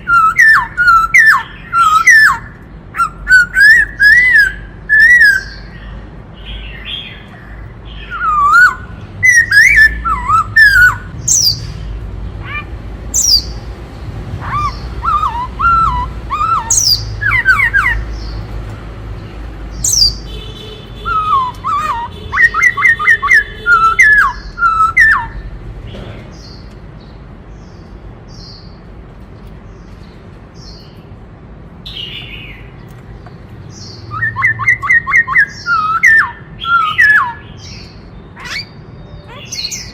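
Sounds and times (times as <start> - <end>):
bird singing whistled phrases: 0.0 - 5.7, 7.9 - 11.7, 14.5 - 18.0, 21.0 - 25.4, 34.0 - 39.9
sharp high bird calls: 0.0 - 11.8, 12.4 - 13.7, 14.4 - 18.4, 19.7 - 25.5, 33.7 - 39.9.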